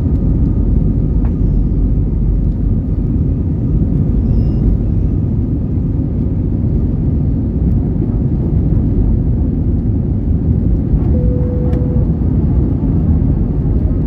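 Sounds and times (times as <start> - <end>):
jet engines rumbling in cabin: 0.0 - 14.0
short steady tone: 11.1 - 12.2.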